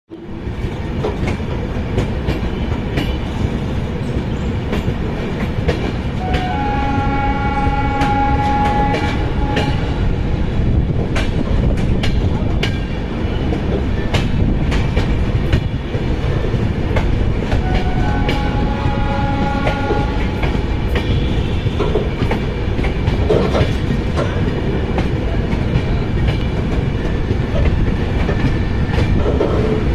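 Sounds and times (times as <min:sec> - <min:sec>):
train rumbling on rails: 0:00.1 - 0:29.9
train horn: 0:06.2 - 0:10.1, 0:17.6 - 0:22.2
wheels clicking over rail joints: 0:19.5 - 0:29.9.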